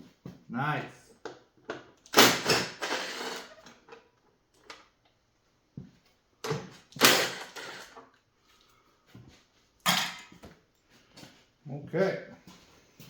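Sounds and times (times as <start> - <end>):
tools clattering: 9.8 - 10.4.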